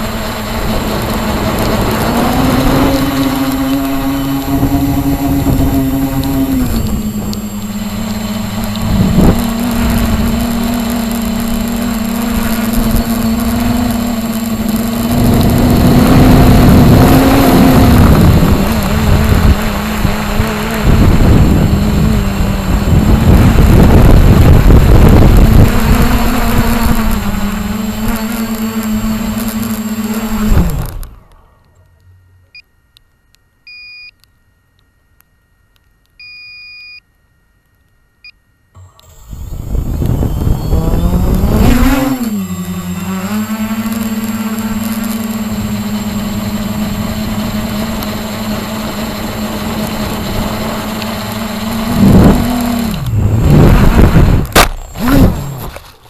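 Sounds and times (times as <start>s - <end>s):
wind on microphone: 0.0s - 31.1s, 39.3s - 55.7s
model helicopter rotor hum: 0.0s - 31.6s, 38.8s - 56.0s
short electronic beeps: 33.7s - 34.2s, 36.2s - 37.1s.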